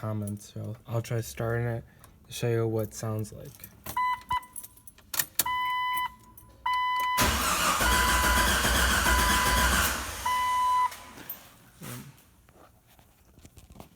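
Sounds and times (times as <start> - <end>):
dashboard warning chime beeping: 3.9 - 4.6, 5.5 - 7.3, 9.0 - 11.4
engine cranking on starter: 7.2 - 11.5.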